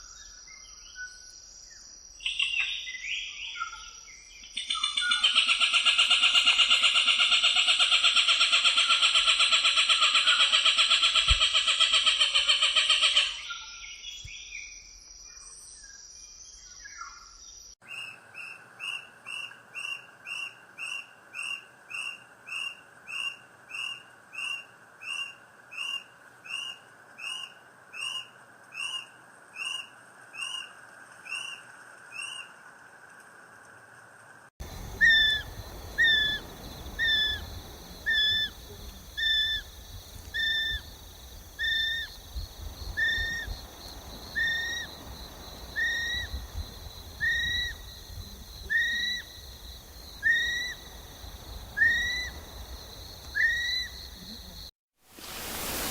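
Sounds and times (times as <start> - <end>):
two-part bird calls: 4.6 - 13.4, 34.6 - 42.3, 42.9 - 48.1, 50.2 - 52.6
harsh bird call: 34.6 - 39.7.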